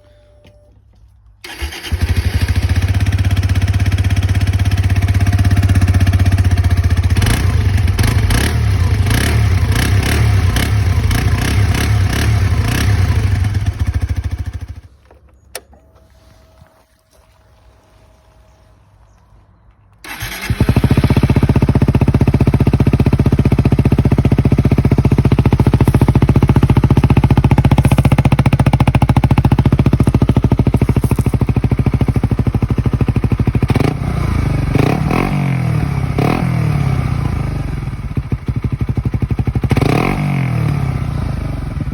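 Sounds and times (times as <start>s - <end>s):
motorcycle engine starting and idling: 0.0s - 16.9s, 19.0s - 41.9s
engine revving: 5.1s - 14.7s, 20.0s - 41.9s.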